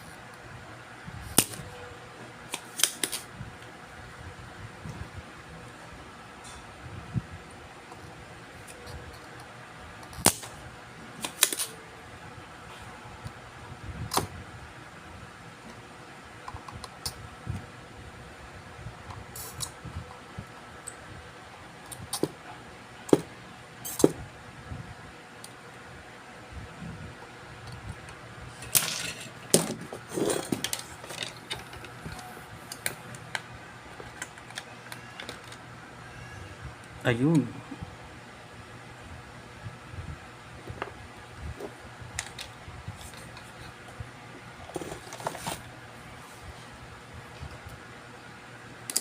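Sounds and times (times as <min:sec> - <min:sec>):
fan hiss: 0:00.0 - 0:49.0.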